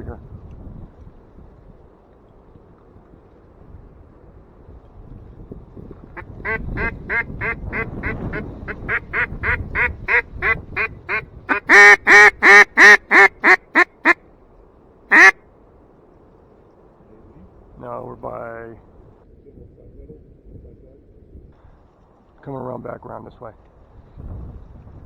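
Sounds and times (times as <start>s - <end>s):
duck call quacking: 6.2s - 14.2s, 15.1s - 15.4s.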